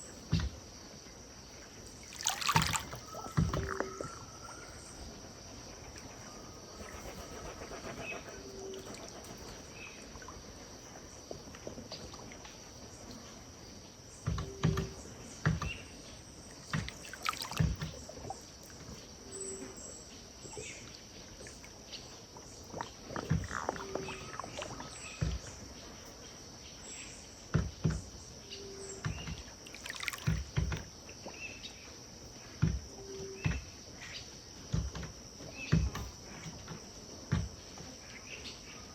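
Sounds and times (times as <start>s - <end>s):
high insect drone: 0.0s - 11.5s, 16.0s - 20.8s, 28.8s - 31.1s
river water lapping against bank: 1.7s - 5.1s, 16.3s - 25.8s, 29.6s - 31.5s
faint bird chirps: 1.8s - 10.4s, 14.3s - 26.0s.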